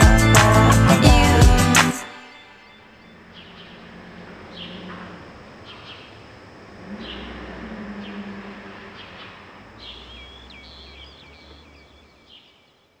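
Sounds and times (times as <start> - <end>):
birds chirping: 0.0 - 13.0
low outdoor background noise: 2.0 - 13.0
bird trilling: 6.9 - 12.5.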